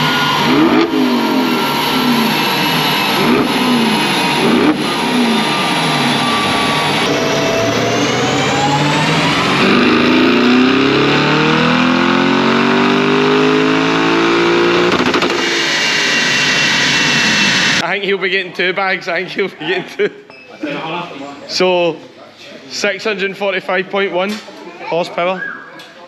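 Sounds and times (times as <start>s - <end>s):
car engine at full throttle: 0.0s - 17.8s.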